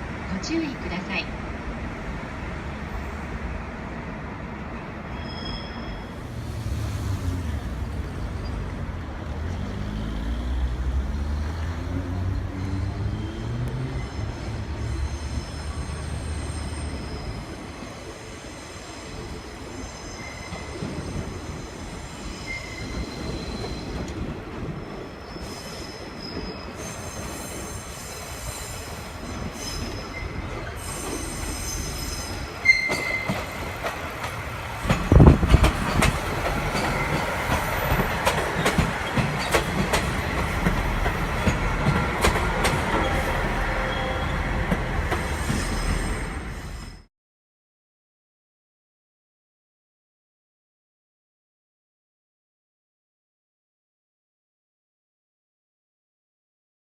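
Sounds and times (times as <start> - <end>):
diesel train engine rumbling: 0.0 - 19.7, 20.7 - 47.1
train wheel squeal: 5.0 - 7.4, 11.4 - 33.9, 34.9 - 47.1.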